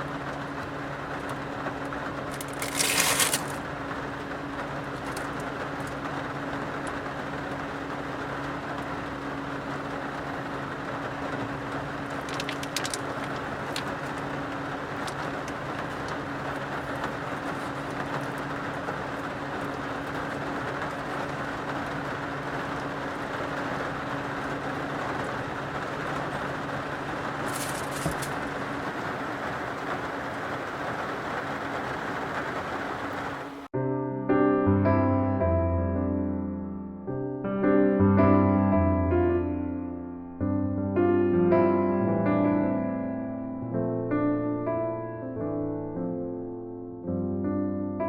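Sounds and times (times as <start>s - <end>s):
heavy rain on car: 0.0s - 33.7s.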